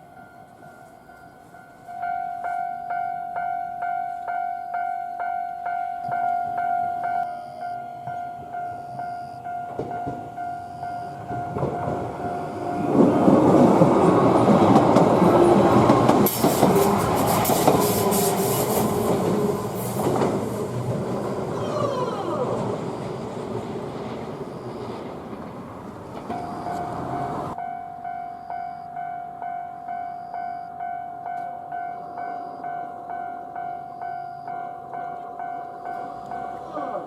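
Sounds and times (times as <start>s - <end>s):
electric train rumble: 0.0s - 37.0s
wheels clacking over rail joints: 6.0s - 27.6s.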